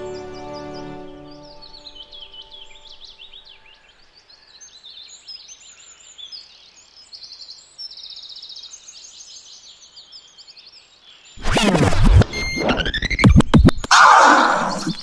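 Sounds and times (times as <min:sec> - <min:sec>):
birds singing and chirping: 0:00.0 - 0:11.4.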